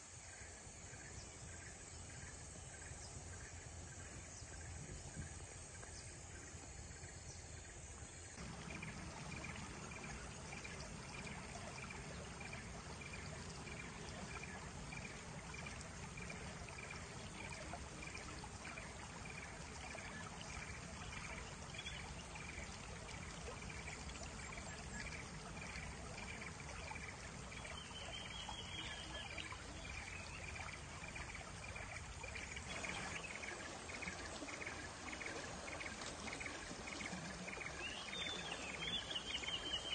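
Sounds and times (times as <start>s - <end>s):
insects chirping: 0.0s - 39.9s
stream water rushing: 8.4s - 39.9s.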